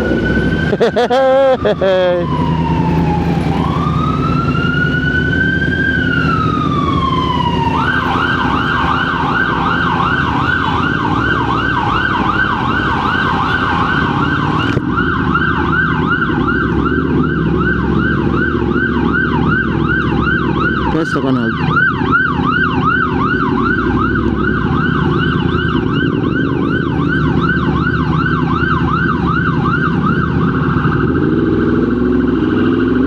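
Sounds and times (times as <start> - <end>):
electronic siren wailing and yelping: 0.0 - 33.0
engine and traffic rumble: 0.0 - 33.0.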